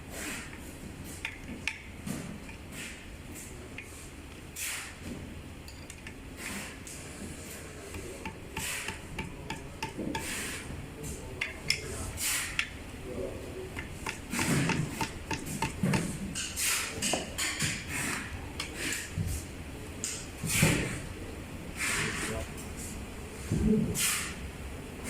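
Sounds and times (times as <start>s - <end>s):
sharp clicks of parts and tools: 1.2s - 2.6s, 5.7s - 6.2s, 11.4s - 12.8s, 13.8s - 17.8s.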